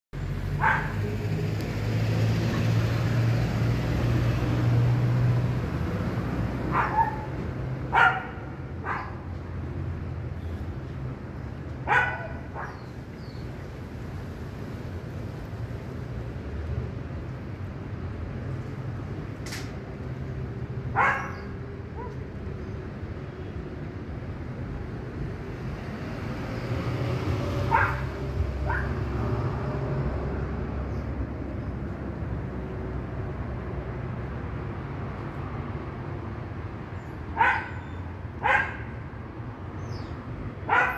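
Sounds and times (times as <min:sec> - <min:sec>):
dog barking: 0:00.6 - 0:01.1, 0:06.7 - 0:07.3, 0:07.9 - 0:09.2, 0:11.8 - 0:12.8, 0:20.9 - 0:22.2, 0:27.7 - 0:29.0, 0:37.4 - 0:39.0, 0:40.7 - 0:40.9.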